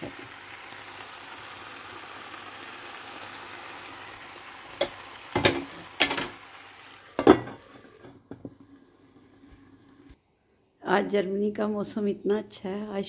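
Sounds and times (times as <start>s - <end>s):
food sizzling in a pot: 0.0s - 10.2s.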